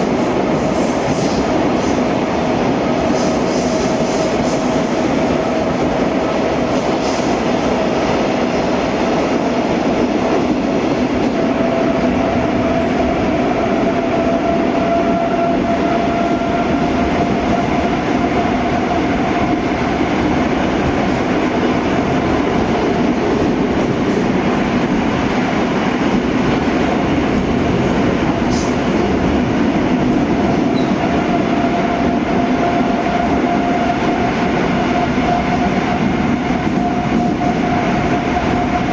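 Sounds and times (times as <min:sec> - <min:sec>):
metro train rolling rumble: 0:00.0 - 0:38.9
train whine: 0:00.0 - 0:38.9.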